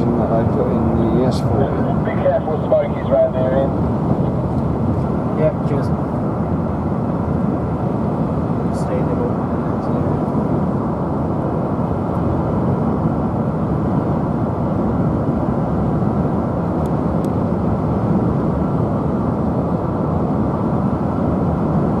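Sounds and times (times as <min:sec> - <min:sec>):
road and engine rumble in cabin: 0:00.0 - 0:22.0.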